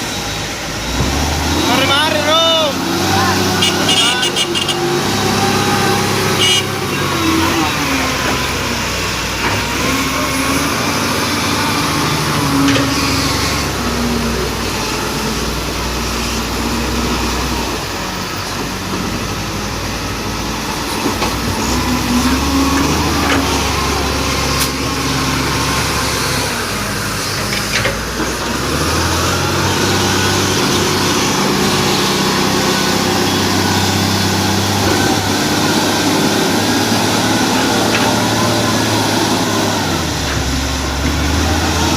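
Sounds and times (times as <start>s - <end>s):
bulldozer diesel engine running: 0.0s - 41.9s.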